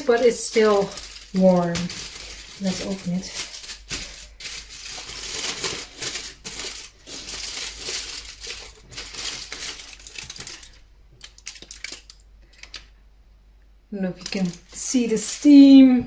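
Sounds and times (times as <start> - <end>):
aluminium foil crinkling: 0.0 - 12.9, 14.1 - 15.9.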